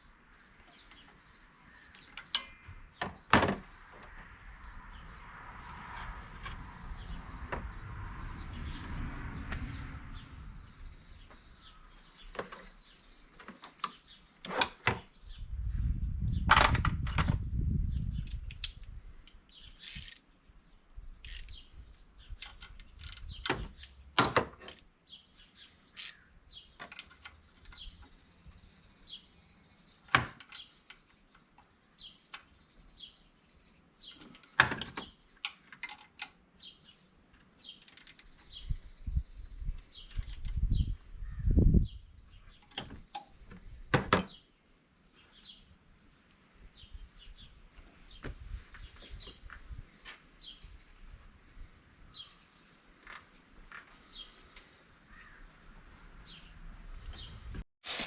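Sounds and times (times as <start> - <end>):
light metal clicks and clinks: 2.2 - 2.7.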